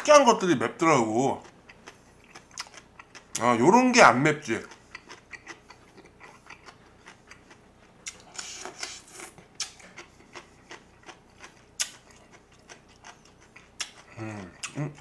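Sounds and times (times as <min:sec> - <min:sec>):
chewing crisp pepper: 0:01.0 - 0:03.6, 0:04.4 - 0:15.0
wet mouth clicks: 0:08.0 - 0:10.1, 0:11.8 - 0:12.2.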